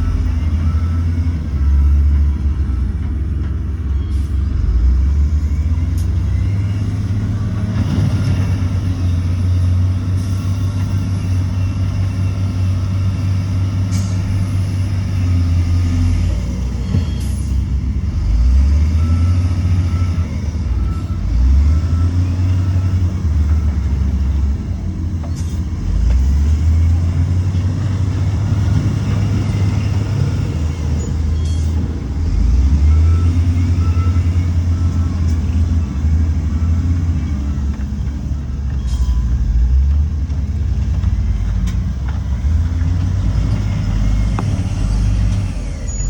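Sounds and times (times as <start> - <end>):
reversing alarm beeping: 0.0 - 7.6, 8.9 - 24.6, 28.1 - 40.0
heavy diesel machinery engine: 0.0 - 46.0.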